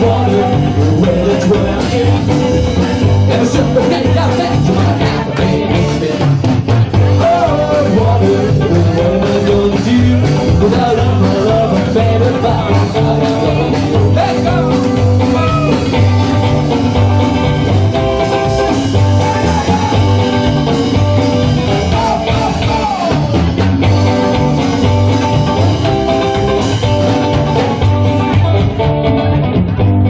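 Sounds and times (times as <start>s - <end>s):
bass and drum beat: 0.0s - 30.0s
lead guitar solo: 12.6s - 30.0s.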